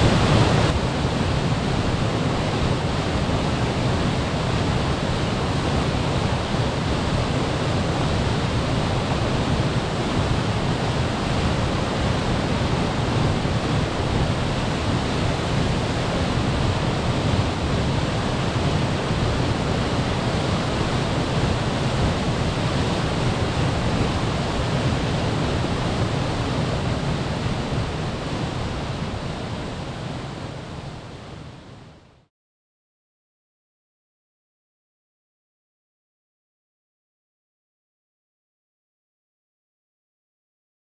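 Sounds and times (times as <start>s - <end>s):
waterfall roaring: 0.0s - 32.1s.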